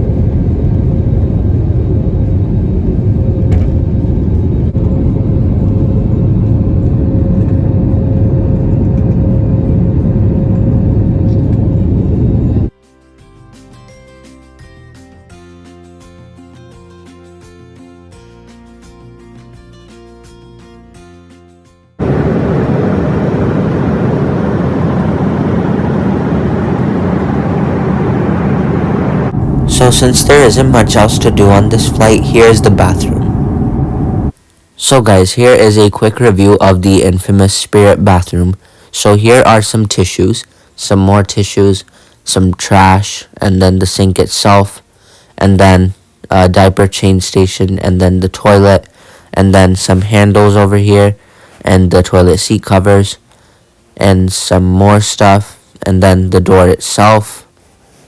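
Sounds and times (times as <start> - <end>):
jet engines rumbling in cabin: 0.0 - 12.7, 22.0 - 34.4
thin steady whine: 22.0 - 44.8.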